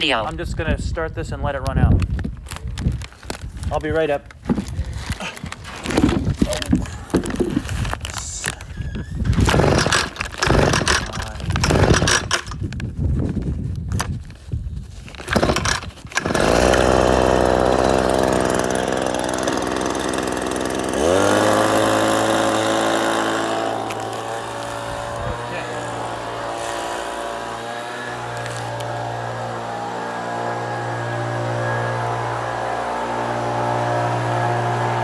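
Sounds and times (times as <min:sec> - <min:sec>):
motor running: 0:09.2 - 0:12.6, 0:15.2 - 0:35.0
irregular knocks and clatter: 0:09.2 - 0:12.8, 0:15.1 - 0:17.2.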